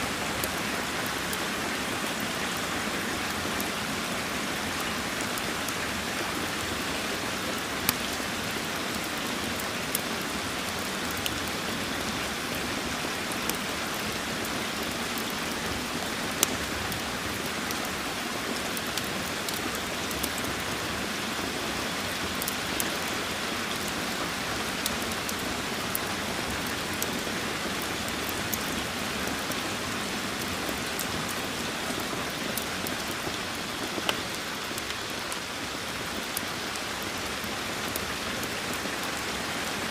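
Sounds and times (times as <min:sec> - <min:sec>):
steady rain falling: 0:00.0 - 0:39.9
wood fire crackling and popping: 0:07.4 - 0:21.4, 0:22.3 - 0:24.0, 0:24.6 - 0:35.4.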